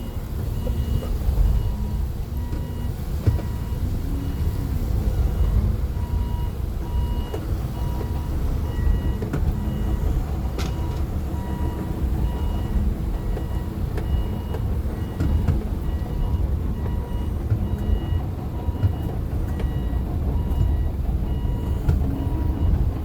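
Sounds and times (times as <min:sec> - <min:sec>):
electronic warning beep: 0:00.0 - 0:23.0
vehicle engine rumble: 0:00.0 - 0:23.0.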